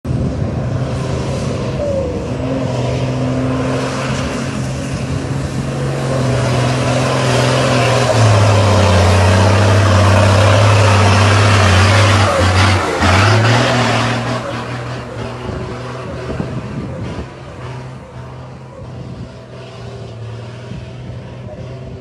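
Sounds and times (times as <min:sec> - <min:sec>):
truck engine under load: 0:00.0 - 0:22.0.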